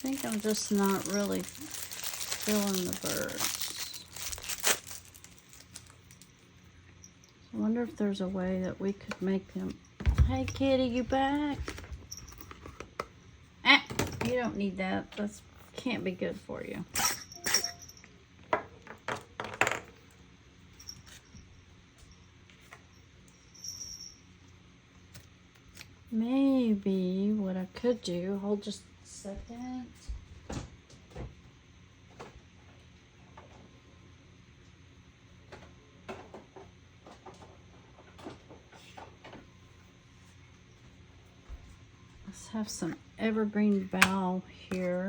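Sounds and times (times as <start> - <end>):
small objects clattering on tabletop: 0.0 - 6.4, 18.5 - 20.0
low steady hum: 0.0 - 45.0.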